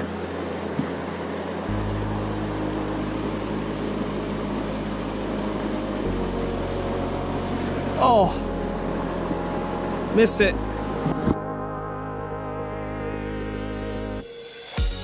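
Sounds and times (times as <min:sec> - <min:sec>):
stream water rushing: 0:00.0 - 0:11.4
low rumble: 0:00.0 - 0:14.2.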